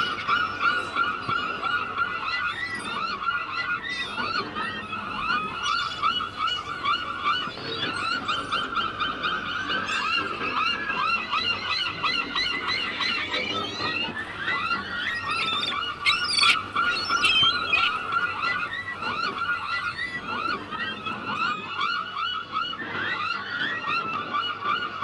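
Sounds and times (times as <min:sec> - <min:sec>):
flock of gulls calling: 0:00.0 - 0:25.0.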